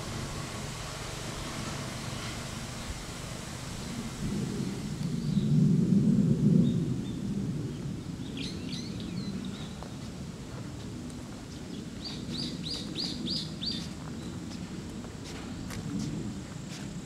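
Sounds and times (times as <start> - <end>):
steady low rumble: 0.0 - 17.0
songbird calling: 11.7 - 14.4.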